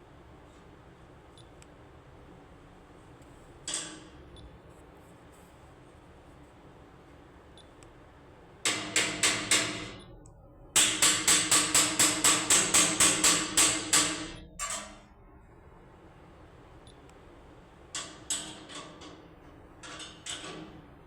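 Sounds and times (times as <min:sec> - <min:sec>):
sharp ringing knocks: 0:08.7 - 0:10.1, 0:10.8 - 0:14.8.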